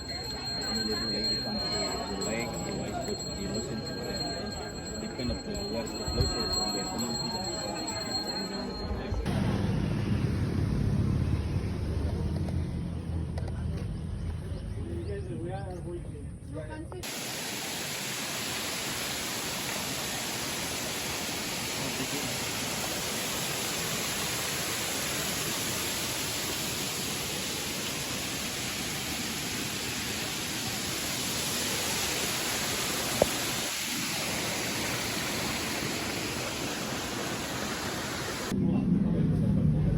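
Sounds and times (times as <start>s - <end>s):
waterfall rushing: 17.0s - 38.5s.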